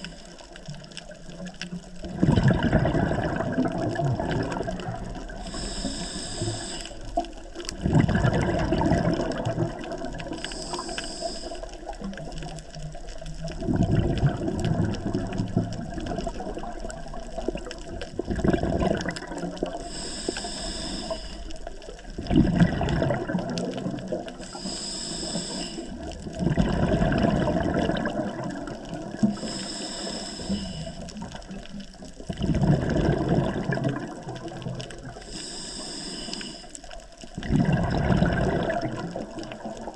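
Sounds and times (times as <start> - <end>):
exhaled bubbles burbling: 0.0 - 6.0, 7.0 - 10.9, 11.5 - 19.9, 21.6 - 24.6, 25.4 - 29.5, 30.8 - 35.3, 37.0 - 39.9
regulator hiss on inhale: 5.2 - 7.6, 10.2 - 12.2, 19.7 - 21.9, 24.2 - 26.2, 29.2 - 31.5, 34.9 - 37.0.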